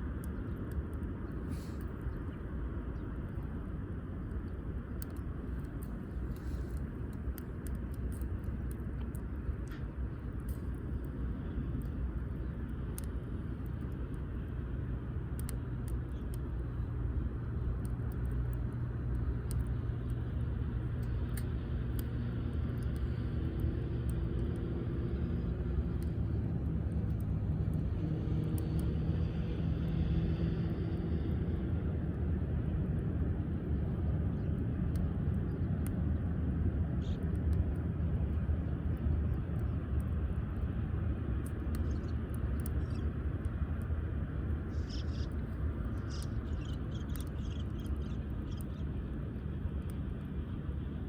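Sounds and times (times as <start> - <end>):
distant engine drone: 0.0 - 51.0
faint sharp clicks: 4.3 - 14.2, 15.3 - 16.8, 17.8 - 20.2, 20.9 - 24.7, 25.8 - 27.3, 34.3 - 36.0, 41.4 - 43.9, 44.7 - 48.8.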